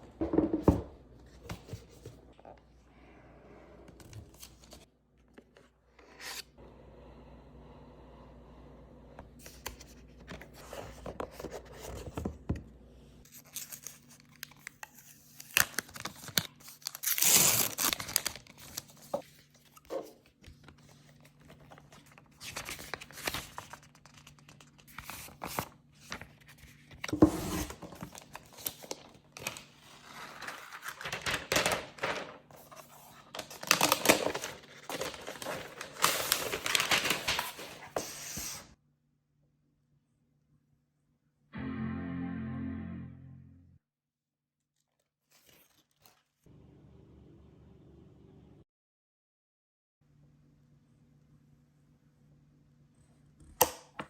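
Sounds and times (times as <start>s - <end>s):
paper wrapping tearing and crinkling: 13.3s - 19.1s, 27.6s - 38.4s.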